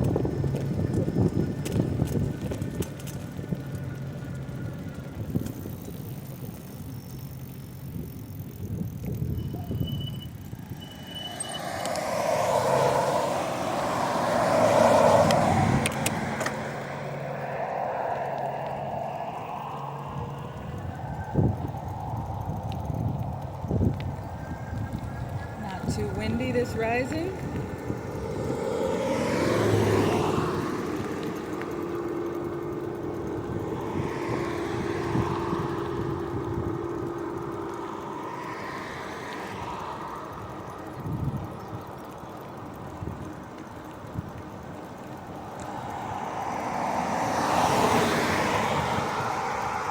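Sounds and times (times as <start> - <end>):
car passing by: 9.5 - 44.2, 45.0 - 49.9.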